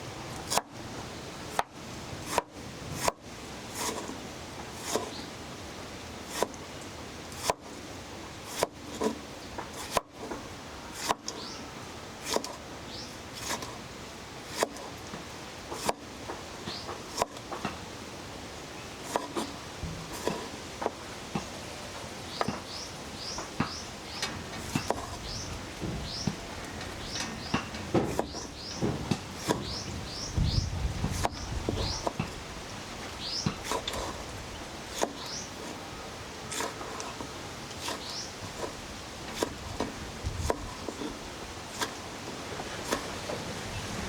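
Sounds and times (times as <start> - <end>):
sharp knocks: 23.3 - 29.8.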